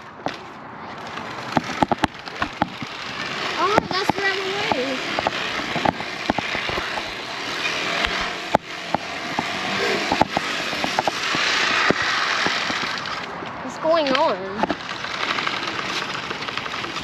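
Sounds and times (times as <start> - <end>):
bicycle clicks and rattles: 0.0 - 17.0
bicycle tyres hissing: 1.3 - 13.4.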